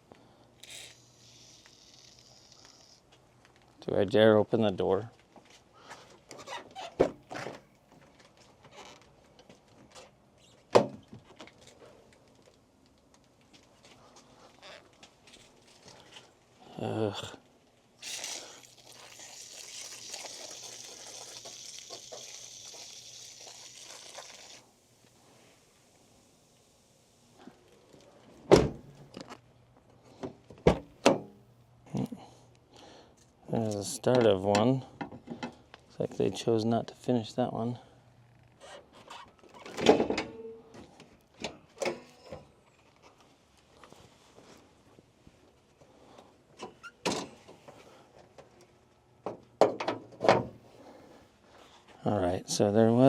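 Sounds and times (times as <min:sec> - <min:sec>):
car door thump: 0:28.5 - 0:28.9.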